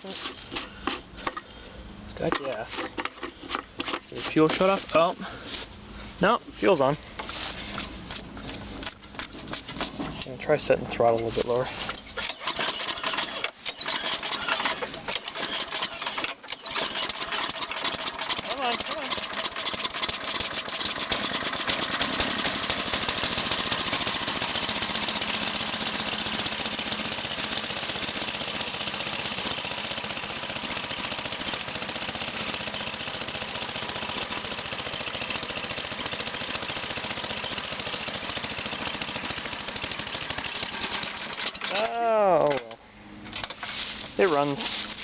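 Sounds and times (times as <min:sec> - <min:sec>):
snowblower engine running: 0:10.6 - 0:42.7, 0:43.3 - 0:45.0.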